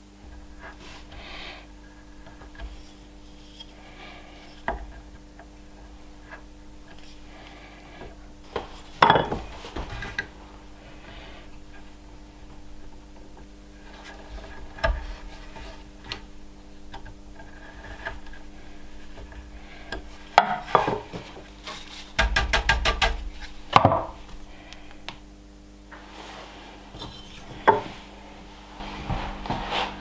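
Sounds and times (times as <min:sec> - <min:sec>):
knocks and clatter of hard objects: 0:08.5 - 0:10.3, 0:22.1 - 0:24.2.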